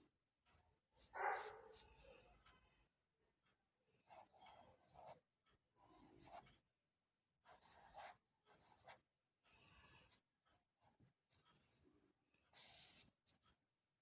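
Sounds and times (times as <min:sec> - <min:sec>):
drawing tool scratching paper: 0:01.0 - 0:02.1, 0:04.0 - 0:05.2, 0:05.8 - 0:06.6, 0:07.4 - 0:09.0, 0:12.5 - 0:13.5.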